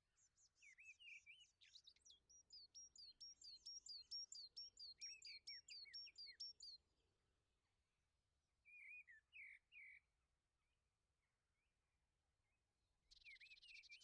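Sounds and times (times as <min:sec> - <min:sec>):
faint bird chirps: 0:00.0 - 0:06.8, 0:08.6 - 0:10.1, 0:12.5 - 0:14.0.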